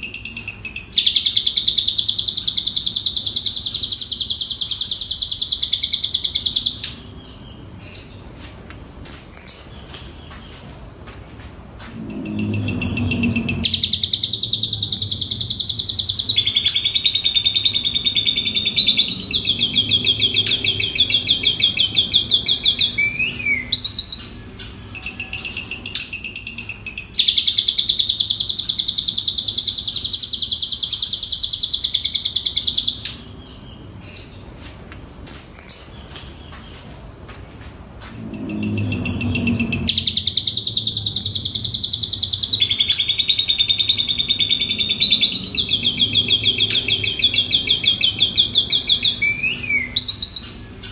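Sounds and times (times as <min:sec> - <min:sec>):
starling singing high chattering notes: 0:11.9 - 0:28.9, 0:38.1 - 0:50.9.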